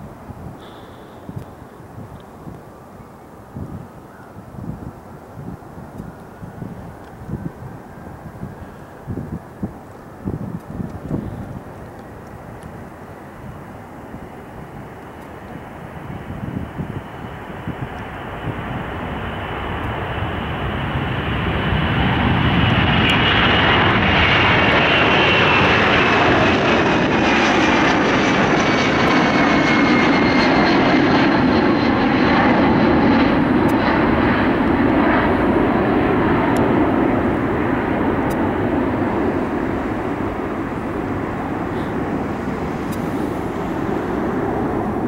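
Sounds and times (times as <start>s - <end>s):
jet engines roaring: 6.1s - 45.0s.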